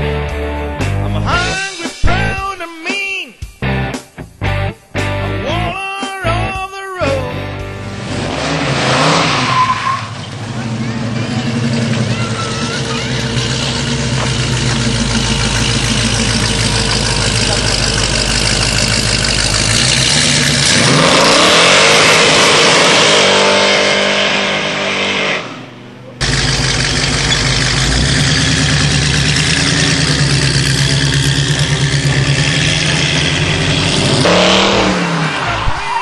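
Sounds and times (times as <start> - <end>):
car engine revving hard: 7.8 - 35.6.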